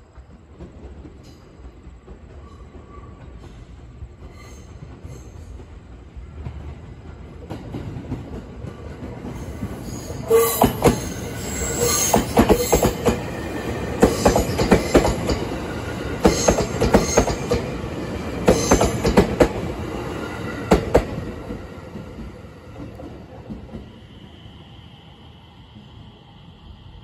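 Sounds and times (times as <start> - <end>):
electric train passing: 0.0 - 27.0
train wheels clacking over rail joints: 13.9 - 19.8.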